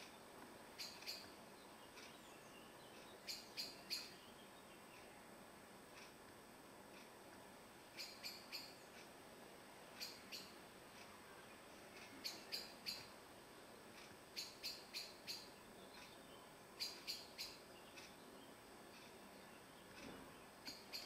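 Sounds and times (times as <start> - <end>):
bird giving sharp high calls: 8.0 - 8.8.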